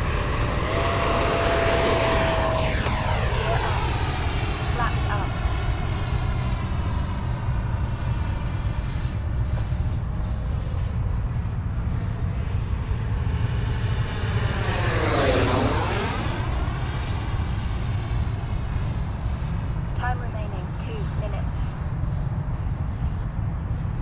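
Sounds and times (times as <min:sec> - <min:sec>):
electric jet fan whining: 0:00.0 - 0:07.9.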